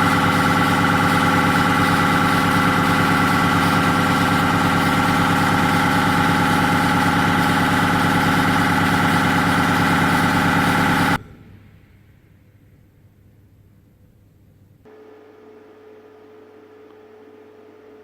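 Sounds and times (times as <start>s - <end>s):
compressor machine hum: 0.0s - 12.1s.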